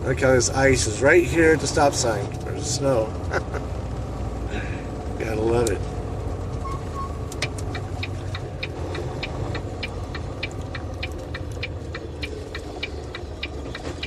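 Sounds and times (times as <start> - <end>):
diesel engine idling: 0.0 - 14.0
turn signal clicking: 5.6 - 14.0.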